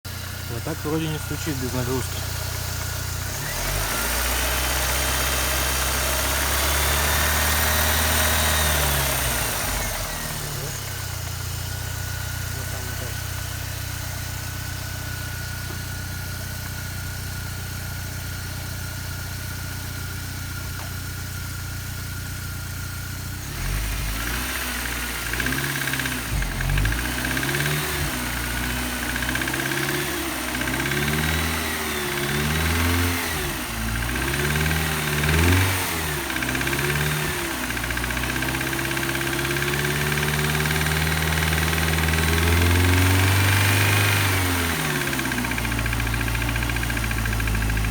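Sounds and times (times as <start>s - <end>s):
car engine idling and revving: 0.0s - 47.9s.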